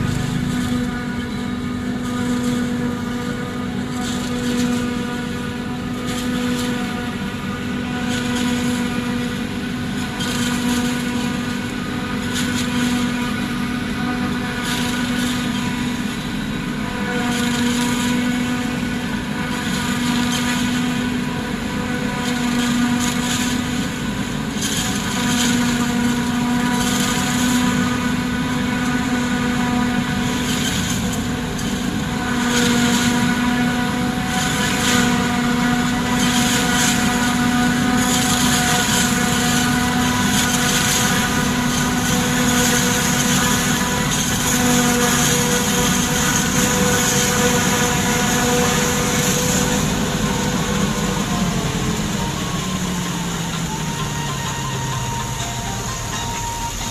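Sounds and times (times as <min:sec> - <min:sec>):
silage chopper machine hum: 0:00.0 - 0:56.9.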